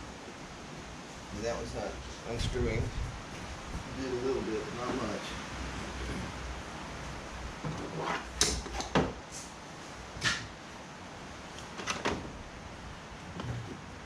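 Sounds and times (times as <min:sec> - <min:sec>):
wind on microphone: 0:02.3 - 0:04.0.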